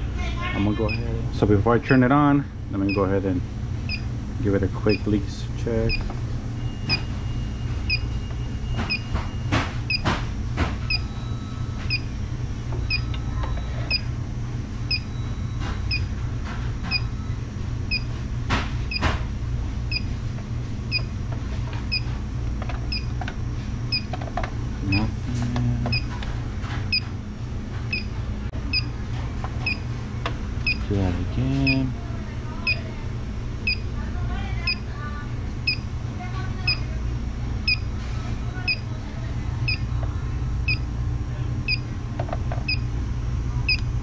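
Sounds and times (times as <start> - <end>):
steady low hum: 0.0 - 44.0
leak detector chirping: 14.9 - 16.1, 19.9 - 20.1, 23.9 - 24.1.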